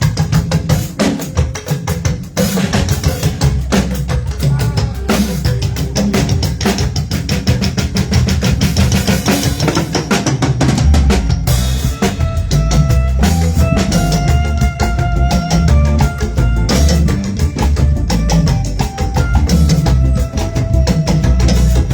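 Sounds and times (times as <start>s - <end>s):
drum kit playing a groove: 0.0s - 21.9s
bass line: 10.6s - 21.9s
held keyboard notes: 10.8s - 21.9s.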